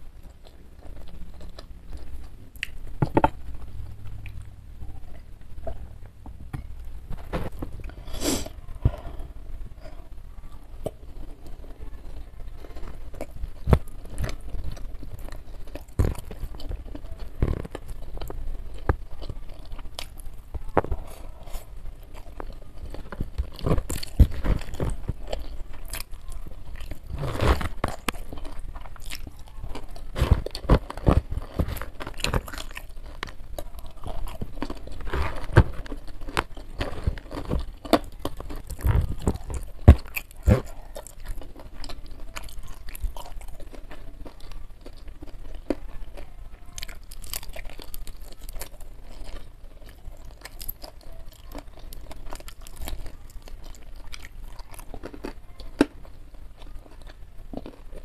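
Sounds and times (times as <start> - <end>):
crunching and chewing fried chicken: 0.0 - 58.0.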